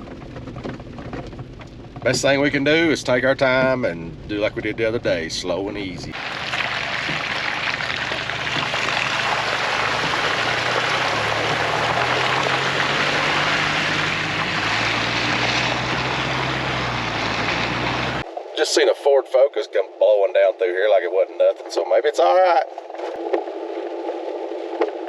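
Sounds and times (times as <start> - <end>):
tyres on wet gravel: 0.0 - 3.7, 6.1 - 18.2
low engine drone: 0.0 - 19.0.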